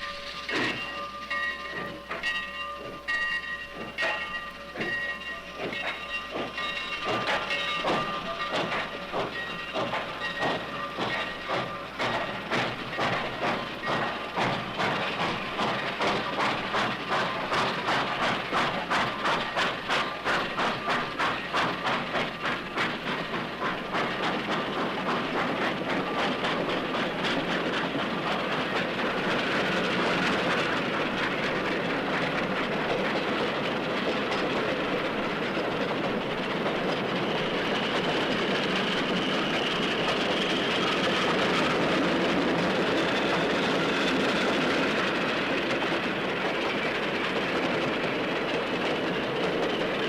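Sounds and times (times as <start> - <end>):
train wheels clacking on rails: 0.0 - 50.0.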